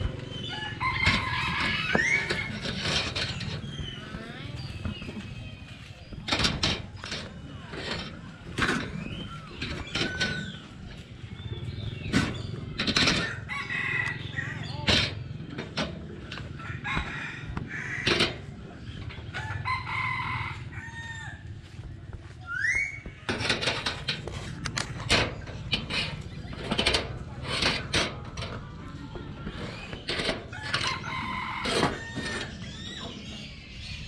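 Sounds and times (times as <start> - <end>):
chickens clucking: 0.0 - 34.0
rooster crowing: 19.4 - 21.5, 30.6 - 32.5.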